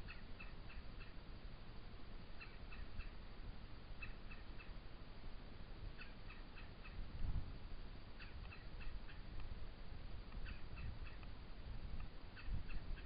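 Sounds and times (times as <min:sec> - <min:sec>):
bird chirping: 0:00.0 - 0:01.2, 0:02.3 - 0:03.2, 0:04.0 - 0:04.8, 0:06.0 - 0:07.0, 0:08.1 - 0:09.4, 0:10.3 - 0:11.3, 0:12.0 - 0:13.0
low background noise: 0:00.0 - 0:13.0.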